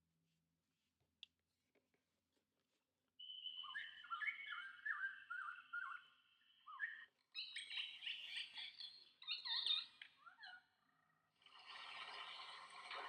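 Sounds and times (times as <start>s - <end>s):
recorded jungle bird calls: 3.2s - 11.0s.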